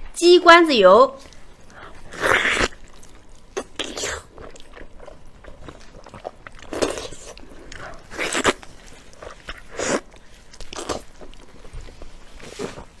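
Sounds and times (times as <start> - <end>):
wet mouth noises: 1.2 - 11.6
person biting and chewing: 1.3 - 11.7.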